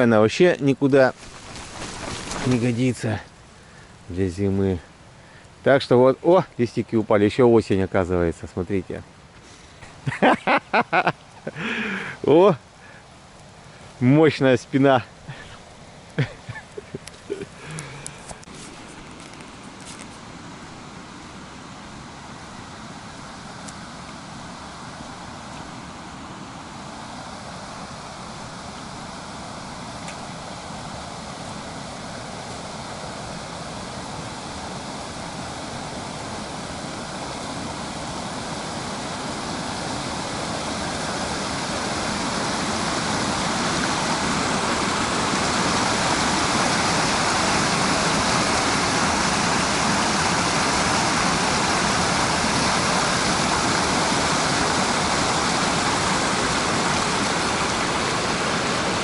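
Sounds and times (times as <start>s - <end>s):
steady rushing noise: 17.9s - 59.0s.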